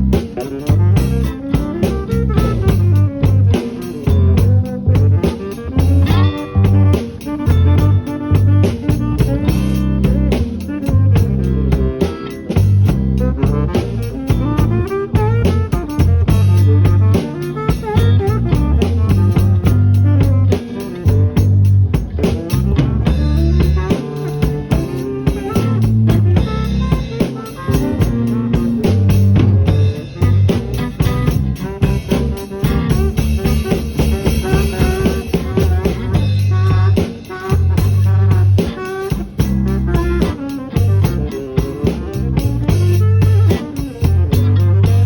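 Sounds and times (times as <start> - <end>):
bass line: 0.0 - 45.0
blues lead guitar: 0.0 - 45.0
drum kit: 0.0 - 45.0.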